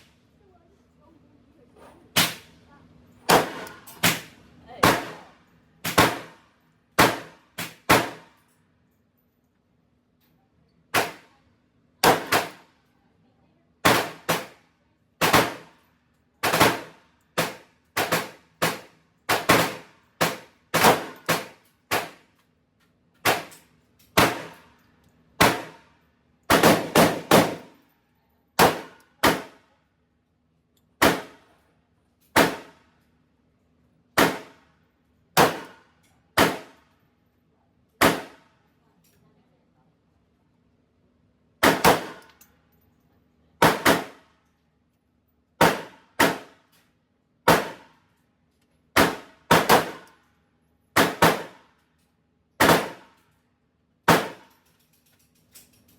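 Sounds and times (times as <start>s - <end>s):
pistol shots echoing: 25.4s - 25.8s, 26.5s - 27.7s, 41.6s - 42.2s, 49.0s - 50.0s.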